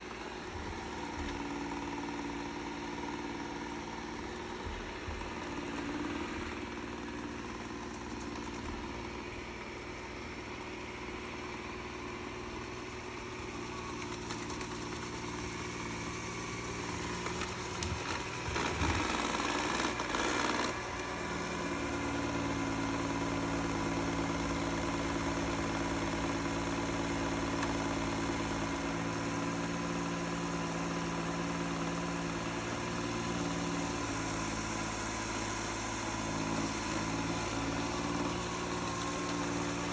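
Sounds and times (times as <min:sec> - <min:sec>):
robot vacuum whirring: 0:13.6 - 0:21.6.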